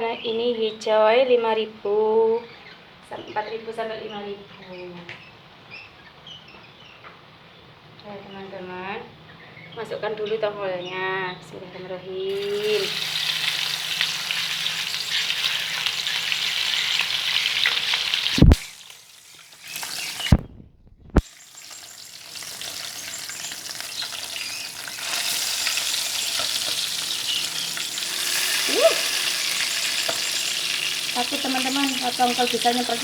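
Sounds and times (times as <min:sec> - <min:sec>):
fish frying in hot oil: 0:12.3 - 0:20.4, 0:21.2 - 0:33.0.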